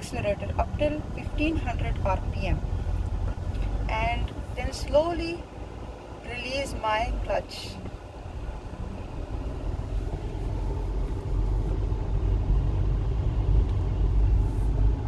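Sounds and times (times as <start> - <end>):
car engine pulling away: 7.0 - 15.0.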